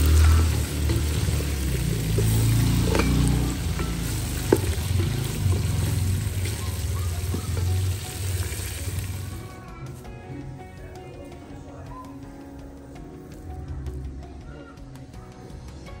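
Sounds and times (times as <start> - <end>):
wooden spoon scraping pot: 0.0 - 9.0
vegetables sizzling in oil: 0.0 - 9.6.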